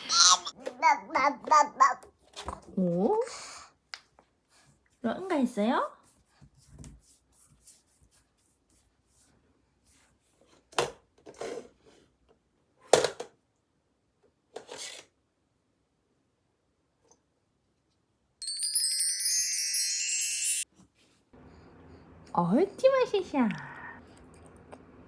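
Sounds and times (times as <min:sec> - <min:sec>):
twinkling chime jingle: 0:18.4 - 0:20.7.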